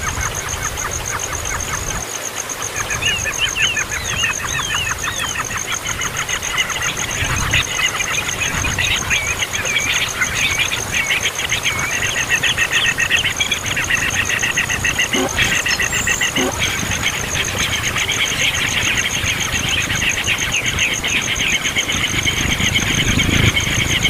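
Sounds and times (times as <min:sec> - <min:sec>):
baby birds chirping: 0:02.9 - 0:24.0
high-pitched pulsing: 0:14.3 - 0:18.4.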